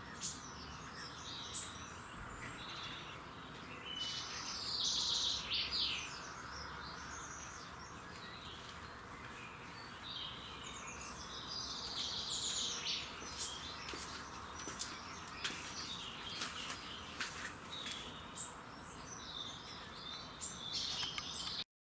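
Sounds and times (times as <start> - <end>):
birds singing and chirping: 0.0 - 21.6
outdoor background hum: 0.0 - 21.6.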